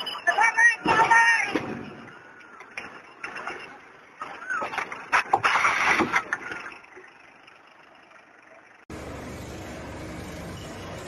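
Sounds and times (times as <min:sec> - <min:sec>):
engine running steadily: 0:05.1 - 0:11.0.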